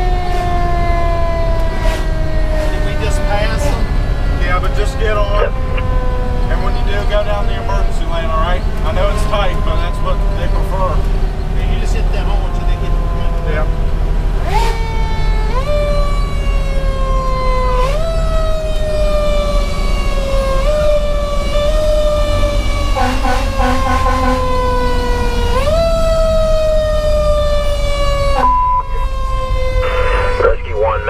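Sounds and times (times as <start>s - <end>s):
short rapid siren blasts: 0.0s - 4.4s, 14.4s - 31.0s
diesel engine drone: 0.0s - 31.0s
mechanical siren wailing: 0.0s - 31.0s.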